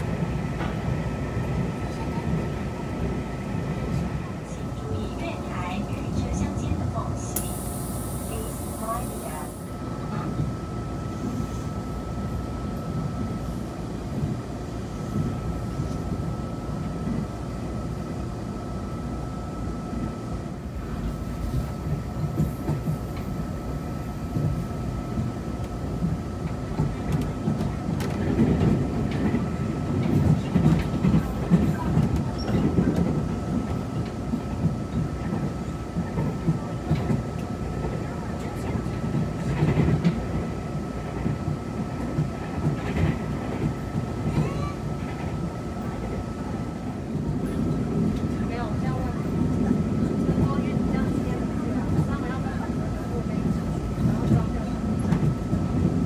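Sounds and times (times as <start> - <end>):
rumble of wheels on rail: 0.0 - 56.0.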